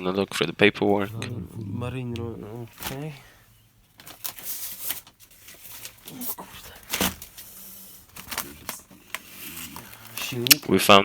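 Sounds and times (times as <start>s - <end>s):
faint voices: 0.9s - 3.2s
papers rustling and crinkling: 4.0s - 10.6s.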